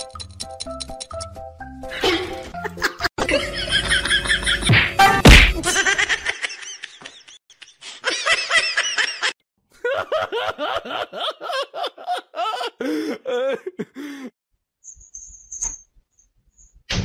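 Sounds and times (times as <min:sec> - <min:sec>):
laughter in quick bursts: 0:01.9 - 0:04.7, 0:05.6 - 0:14.0.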